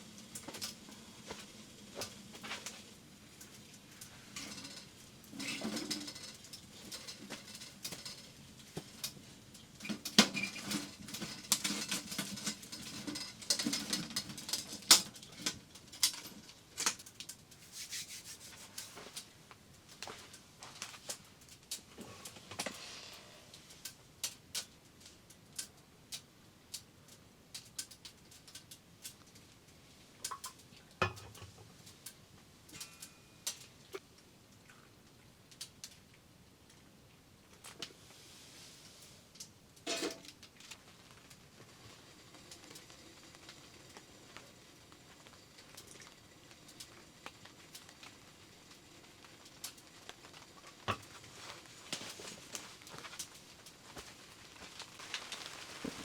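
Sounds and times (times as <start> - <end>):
raindrops tapping on a tent: 40.3 - 56.0.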